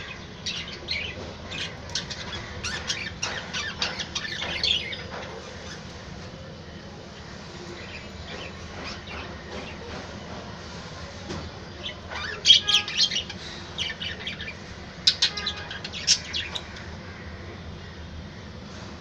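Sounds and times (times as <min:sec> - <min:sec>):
budgerigars chirping: 0:00.0 - 0:05.8, 0:11.8 - 0:17.2.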